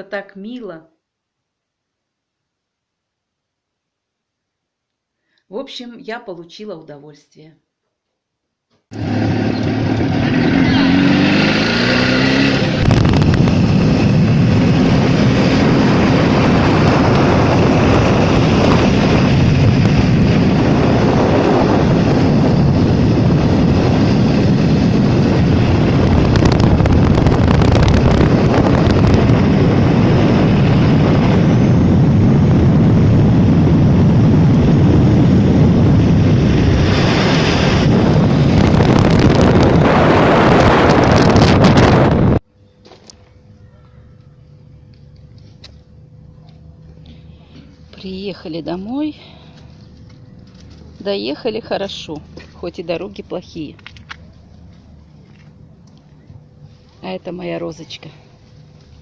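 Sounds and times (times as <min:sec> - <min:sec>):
motorcycle running: 0:08.9 - 0:42.4, 0:43.0 - 0:57.6
wind buffeting microphone: 0:09.4 - 0:42.4.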